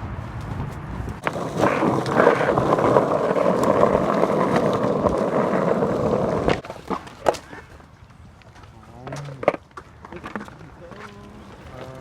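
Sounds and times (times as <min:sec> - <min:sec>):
skateboard wheels rolling on pavement: 0:00.0 - 0:12.0.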